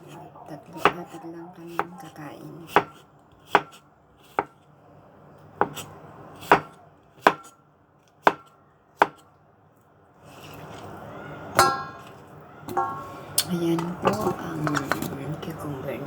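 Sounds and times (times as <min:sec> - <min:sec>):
knife cutting on cutting board: 0:02.6 - 0:04.6, 0:05.6 - 0:07.5
scraping rustle: 0:10.2 - 0:11.1.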